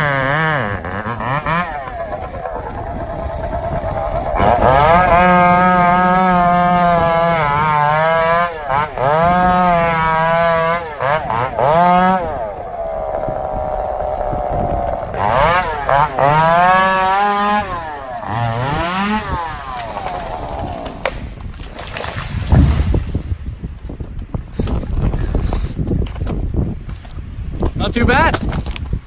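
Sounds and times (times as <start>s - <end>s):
chainsaw revving: 0.0s - 21.4s
deep thud: 22.4s - 23.4s.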